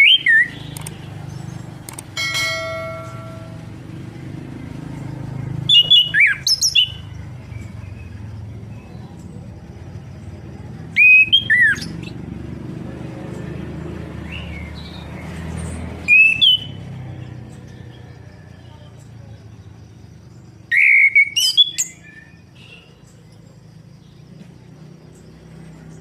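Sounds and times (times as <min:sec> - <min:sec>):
bird singing whistled notes: 0:00.0 - 0:01.6, 0:05.5 - 0:09.2, 0:10.9 - 0:12.2, 0:14.2 - 0:18.9, 0:20.1 - 0:23.4.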